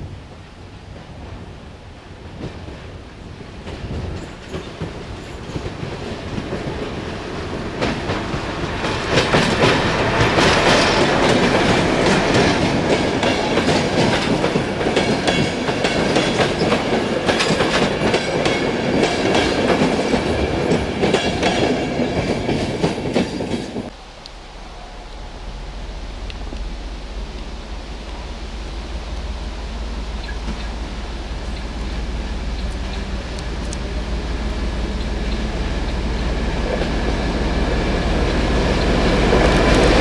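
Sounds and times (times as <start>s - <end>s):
clickety-clack of train wheels: 2.2s - 23.9s, 30.2s - 30.8s, 32.5s - 40.0s
diesel locomotive engine running: 23.9s - 40.0s.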